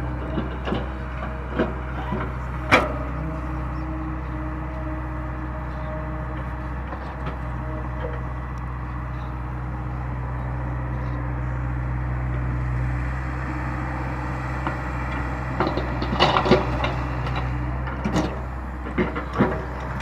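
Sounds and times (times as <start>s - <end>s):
diesel excavator engine running: 0.0s - 20.0s.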